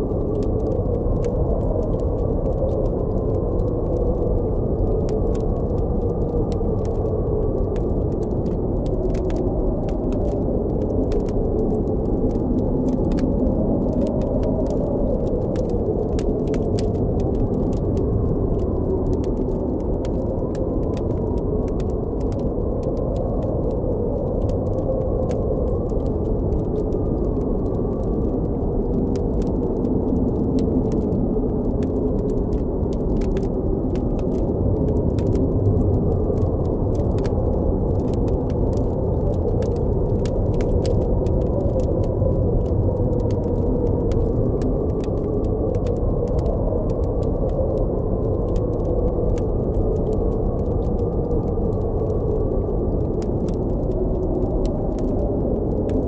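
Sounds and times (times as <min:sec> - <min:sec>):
campfire crackling and popping: 0:00.0 - 0:56.0
howling blizzard wind: 0:00.0 - 0:56.0.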